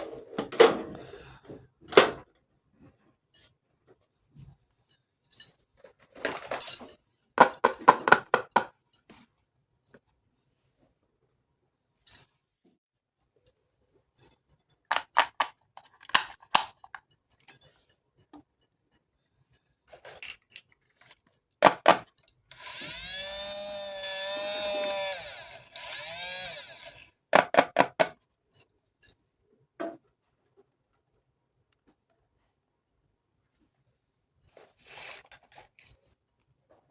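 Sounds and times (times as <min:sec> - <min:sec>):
plastic toy pieces clicking: 0:14.9 - 0:17.0.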